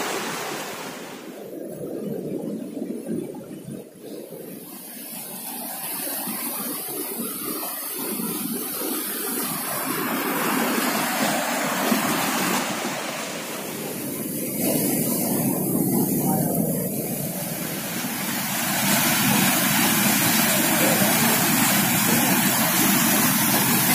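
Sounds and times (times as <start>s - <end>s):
waterfall rushing: 5.5s - 23.9s.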